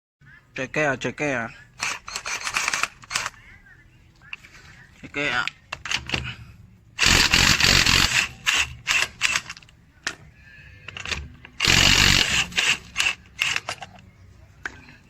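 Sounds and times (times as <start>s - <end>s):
impact wrench hammering: 7.0s - 10.2s, 11.0s - 13.8s.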